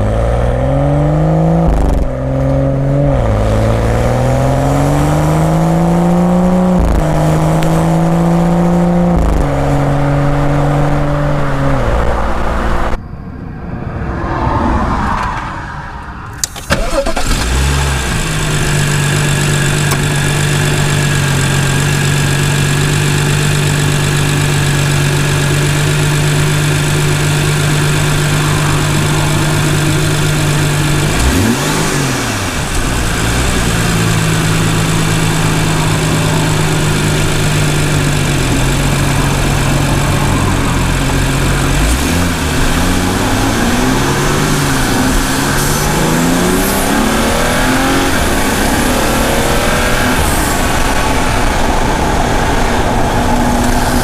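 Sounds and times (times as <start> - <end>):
car exhaust accelerating: 0.0 - 13.0, 14.1 - 54.0
engine idling: 16.5 - 46.2.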